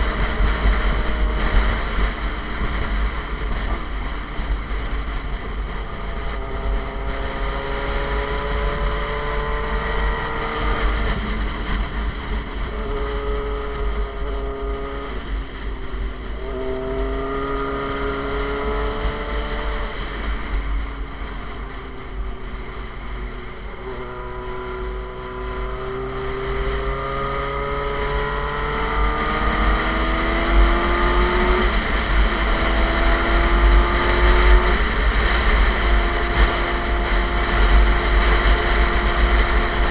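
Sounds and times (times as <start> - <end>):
motorcycle engine accelerating: 0.0 - 39.9
wind buffeting microphone: 0.0 - 39.9.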